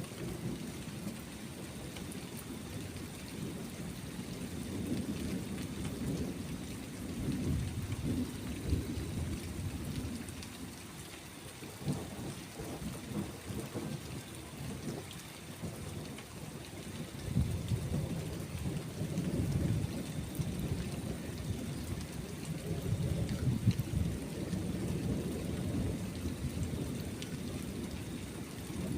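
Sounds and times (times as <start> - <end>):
steady rainfall: 0.0 - 28.9
rolling thunder: 17.0 - 28.9.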